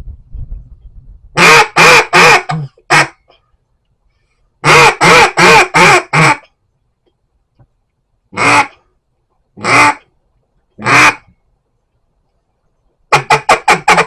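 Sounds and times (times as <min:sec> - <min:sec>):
duck call quacks: 0:01.4 - 0:03.3, 0:04.6 - 0:06.5, 0:08.3 - 0:08.8, 0:09.6 - 0:10.1, 0:10.8 - 0:11.3, 0:13.1 - 0:14.0.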